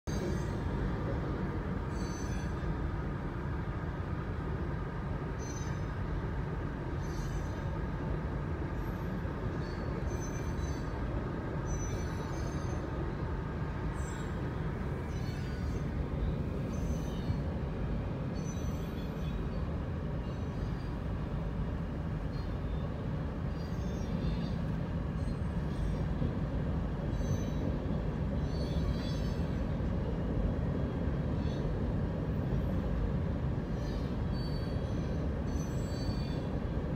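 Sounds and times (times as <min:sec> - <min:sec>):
train wheels squealing: 0:00.1 - 0:00.7, 0:01.9 - 0:02.7, 0:05.4 - 0:05.9, 0:07.0 - 0:07.7, 0:08.8 - 0:11.0, 0:11.6 - 0:12.9, 0:15.1 - 0:15.9, 0:16.5 - 0:17.4, 0:18.4 - 0:19.6, 0:23.5 - 0:26.2, 0:27.1 - 0:27.8, 0:28.4 - 0:29.8, 0:33.7 - 0:36.6
freight train rumbling past: 0:00.1 - 0:36.9.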